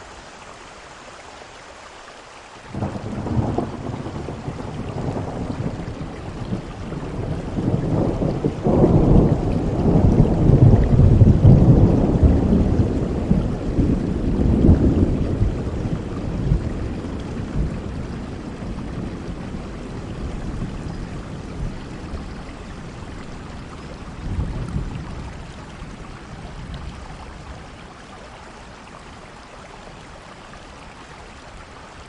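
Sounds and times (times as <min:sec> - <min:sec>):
heavy rain: 0:00.0 - 0:32.0
rolling thunder: 0:02.7 - 0:27.0.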